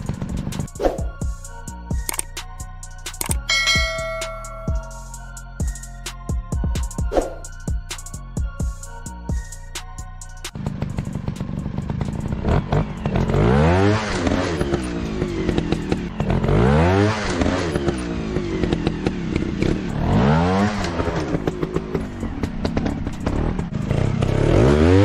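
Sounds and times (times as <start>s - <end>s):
sharp clicks and clatter: 2.0s - 2.3s, 3.1s - 3.5s
dirt bike engine revving: 10.6s - 25.0s.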